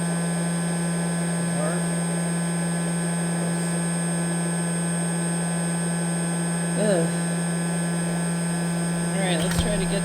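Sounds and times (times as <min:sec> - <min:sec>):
electrical hum: 0:08.8 - 0:10.0.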